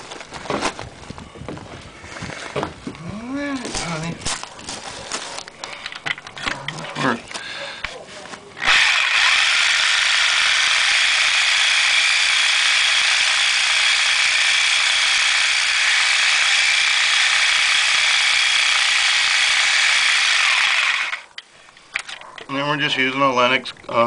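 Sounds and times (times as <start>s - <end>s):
reciprocating saw cutting cast iron pipe: 8.6s - 21.4s.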